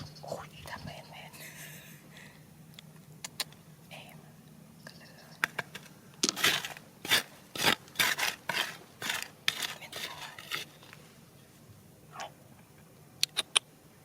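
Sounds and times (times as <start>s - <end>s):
metal tool scraping gravel: 5.6s - 11.2s.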